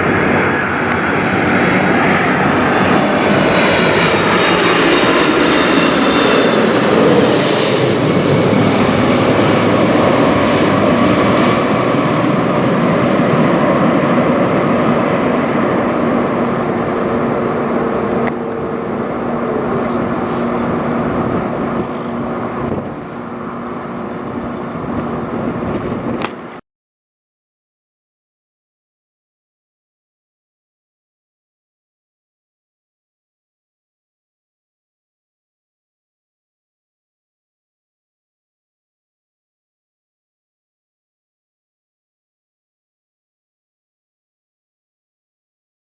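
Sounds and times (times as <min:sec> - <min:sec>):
jet airliner passing overhead: 0:00.0 - 0:26.6.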